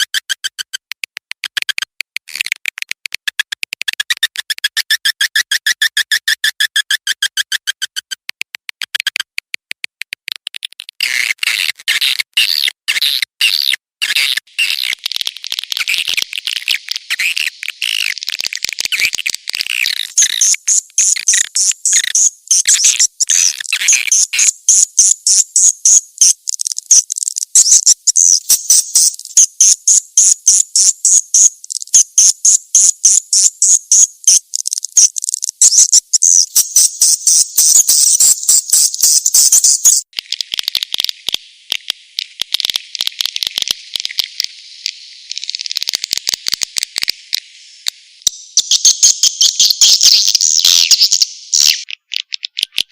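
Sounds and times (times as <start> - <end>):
swiftlets chirping and twittering: 14.5 - 40.1, 48.2 - 51.9.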